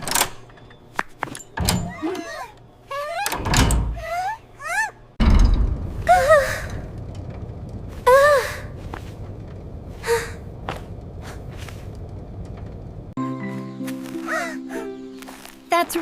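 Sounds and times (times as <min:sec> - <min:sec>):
steady low rumble: 0:05.2 - 0:13.2
music with held tones: 0:13.2 - 0:16.0.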